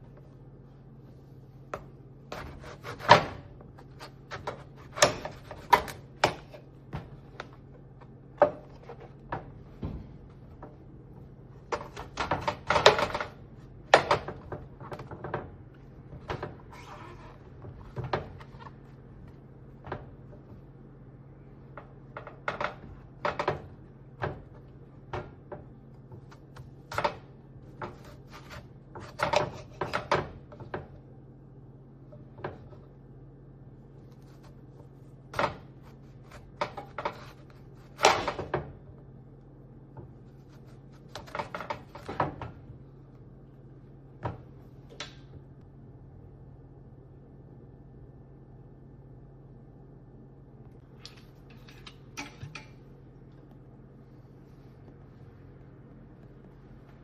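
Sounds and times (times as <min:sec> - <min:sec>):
steady low hum: 0:00.0 - 0:57.0
utensils and dishes knocking: 0:51.5 - 0:52.8.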